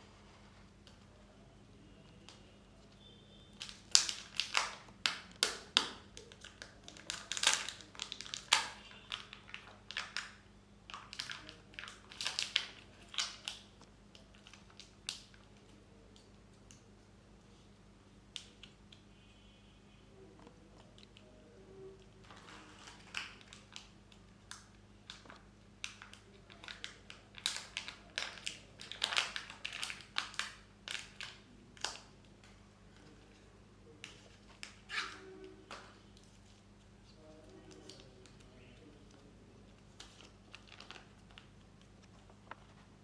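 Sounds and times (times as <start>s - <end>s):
wrappers crinkling and tearing: 3.6s - 15.4s, 22.2s - 23.9s, 25.1s - 32.0s, 34.0s - 42.9s
faint clicks and taps: 35.4s - 42.9s.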